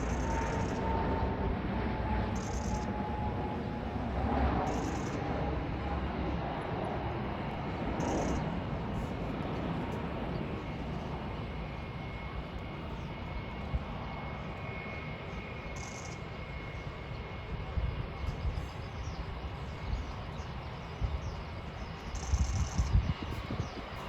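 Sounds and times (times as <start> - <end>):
jet engine rumble: 0.0 - 24.0.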